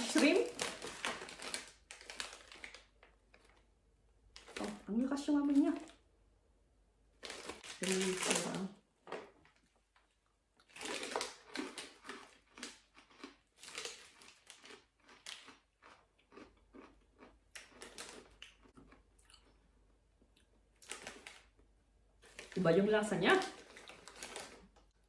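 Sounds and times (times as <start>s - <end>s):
crunching rice cracker: 0.0s - 3.7s, 7.2s - 8.6s, 10.6s - 19.7s, 20.4s - 22.6s, 23.3s - 25.0s.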